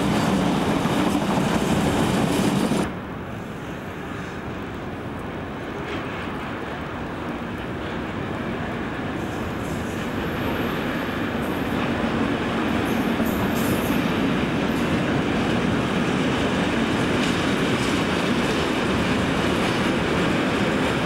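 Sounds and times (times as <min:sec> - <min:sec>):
diesel locomotive passing: 0:00.0 - 0:21.0.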